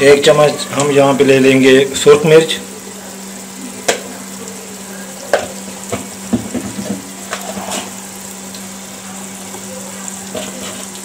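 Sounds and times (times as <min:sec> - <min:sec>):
masala sizzling in oil: 0:00.0 - 0:11.0
wooden spoon knocking a pot: 0:05.3 - 0:07.1.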